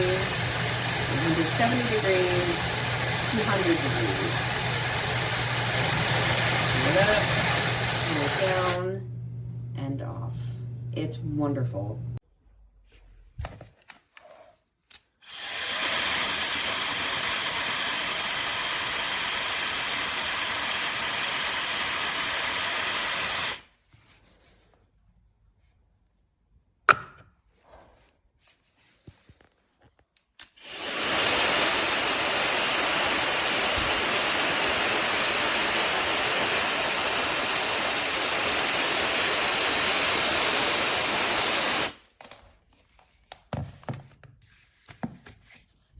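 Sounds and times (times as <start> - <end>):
hair dryer blowing air: 0.0 - 9.0, 15.2 - 23.7, 30.4 - 42.0.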